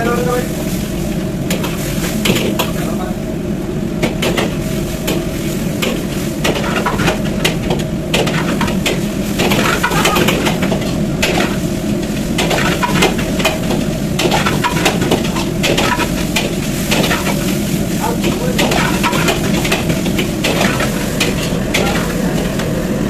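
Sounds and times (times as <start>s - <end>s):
metal utensil clanking in wok: 4.2s - 11.7s, 12.4s - 17.5s, 18.2s - 22.6s.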